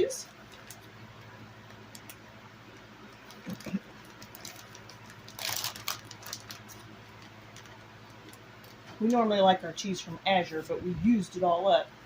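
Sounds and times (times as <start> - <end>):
plastic crinkle: 0.2 - 2.2, 2.8 - 8.9.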